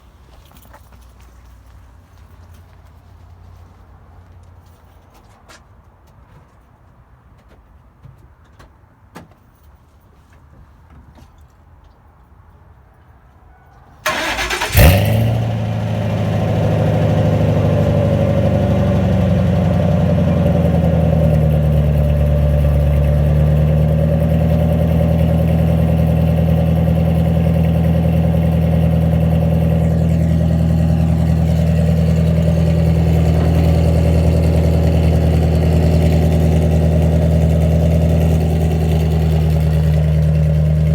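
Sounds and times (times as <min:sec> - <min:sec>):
car engine starting and idling: 0:14.0 - 0:40.9.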